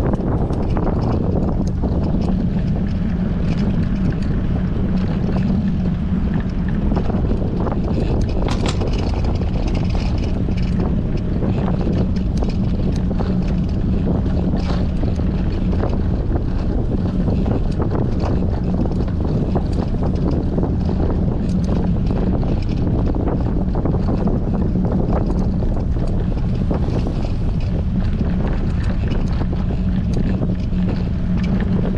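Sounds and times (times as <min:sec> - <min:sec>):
constant low hum: 0:00.0 - 0:31.9
wind buffeting microphone: 0:00.0 - 0:31.9.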